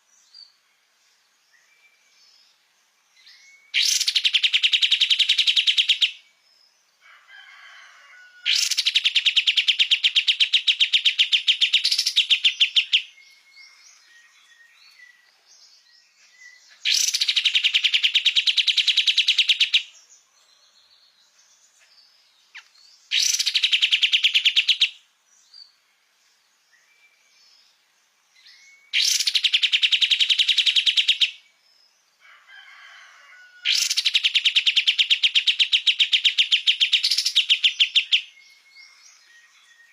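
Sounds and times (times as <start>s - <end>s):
bird singing fast trills: 3.2s - 6.4s, 8.5s - 20.0s, 22.5s - 25.8s, 28.4s - 31.6s, 33.7s - 39.9s.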